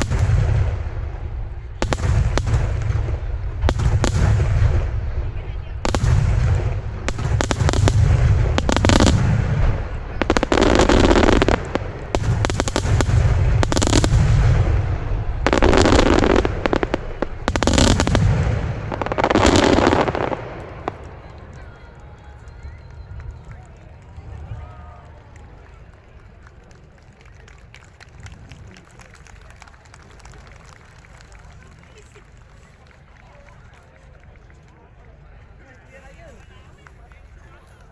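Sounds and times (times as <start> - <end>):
low booming rumble: 0.0 - 21.3
fireworks shells bursting: 0.0 - 21.6
crackling firework bursts: 0.0 - 33.0.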